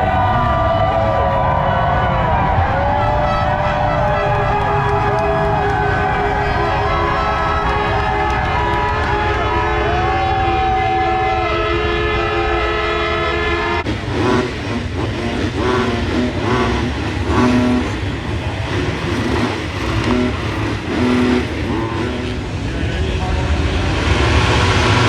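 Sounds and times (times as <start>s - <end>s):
bikes racing past: 13.8s - 25.0s
motocross bikes revving: 13.8s - 25.0s.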